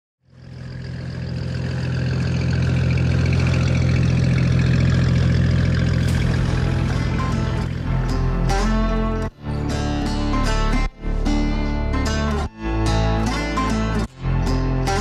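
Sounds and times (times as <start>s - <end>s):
boat engine humming: 0.3s - 12.3s.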